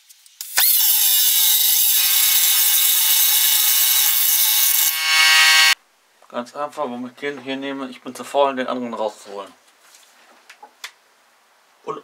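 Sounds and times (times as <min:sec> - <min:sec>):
power tool cutting steel: 0:00.4 - 0:05.8.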